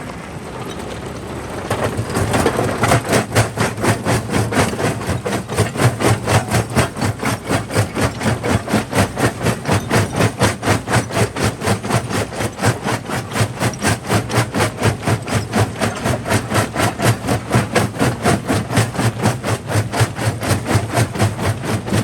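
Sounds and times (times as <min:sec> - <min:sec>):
rock crusher pounding: 0:00.0 - 0:22.0.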